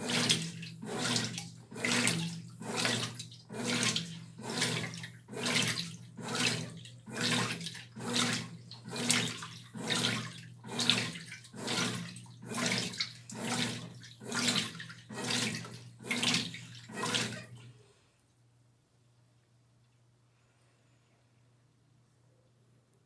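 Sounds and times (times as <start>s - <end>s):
water and clothes sloshing: 0.0s - 17.7s
washing machine motor hum: 0.0s - 17.8s.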